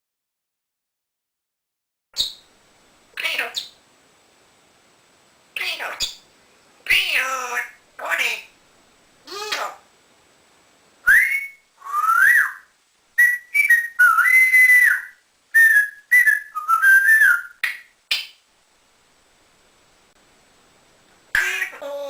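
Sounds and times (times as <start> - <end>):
parrot whistling: 11.0 - 17.8.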